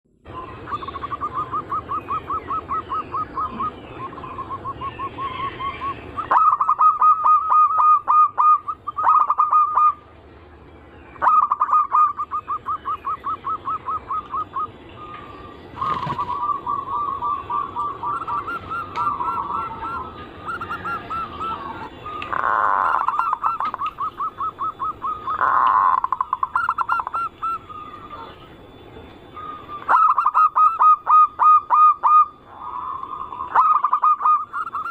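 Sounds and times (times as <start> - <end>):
doves cooing: 0.3 - 10.0, 11.2 - 34.9.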